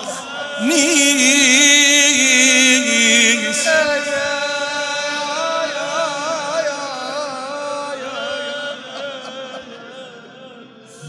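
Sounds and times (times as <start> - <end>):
man singing solo: 0.0 - 7.2.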